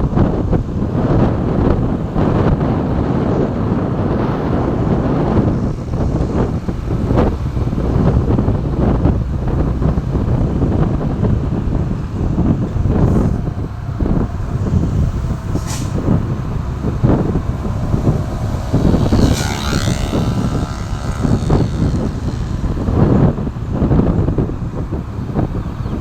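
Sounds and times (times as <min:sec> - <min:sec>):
heavy truck traffic rumbling: 0:00.0 - 0:26.0
wind buffeting microphone: 0:00.0 - 0:26.0
high-pitched squeal: 0:12.0 - 0:23.5
short hiss: 0:15.5 - 0:16.0.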